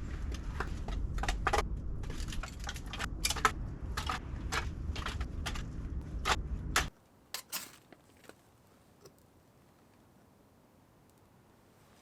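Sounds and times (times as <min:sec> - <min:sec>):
wind rumble on microphone: 0:00.0 - 0:06.9.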